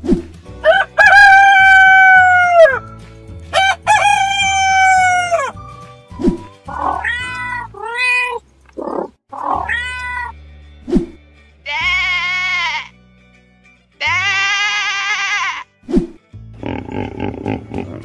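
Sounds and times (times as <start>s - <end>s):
background music: 0.0s - 18.0s
rooster crowing: 0.6s - 2.8s, 3.6s - 5.5s
cat meowing: 6.7s - 8.4s, 9.0s - 10.4s.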